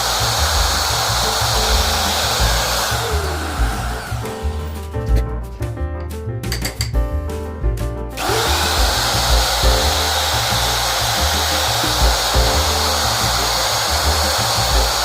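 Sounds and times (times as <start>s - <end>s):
power tool running: 0.0s - 4.8s, 8.2s - 15.0s
music with repeating bass line: 0.0s - 15.0s.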